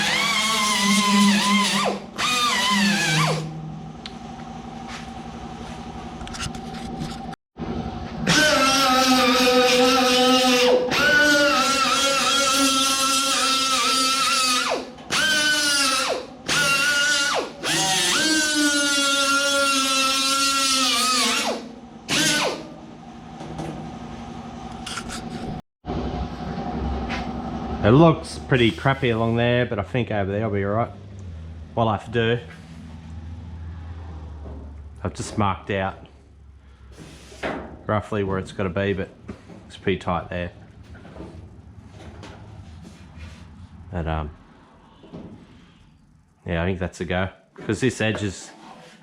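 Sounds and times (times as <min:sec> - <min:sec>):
power tool whine: 0:00.0 - 0:03.6, 0:08.1 - 0:22.7.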